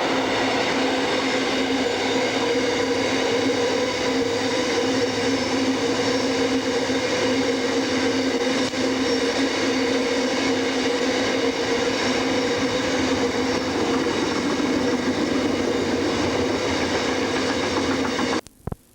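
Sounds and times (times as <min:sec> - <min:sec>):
diesel locomotive engine running: 0:00.0 - 0:18.4.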